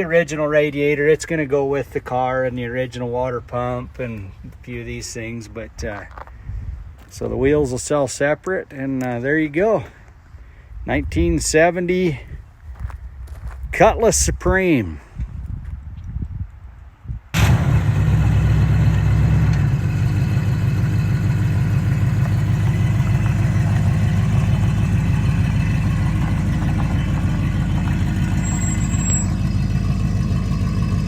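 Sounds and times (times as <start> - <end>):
car engine revving and idling: 17.4 - 31.0.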